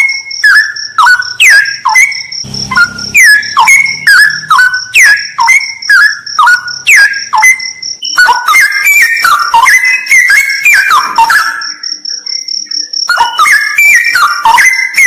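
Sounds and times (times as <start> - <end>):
high pulsing buzz: 2.4 - 5.8
bird singing whistled phrases: 2.8 - 11.7, 13.1 - 15.0.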